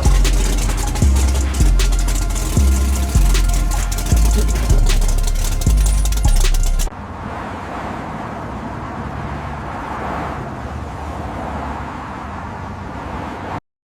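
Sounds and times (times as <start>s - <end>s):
distant vehicle rumble: 0.0s - 7.2s.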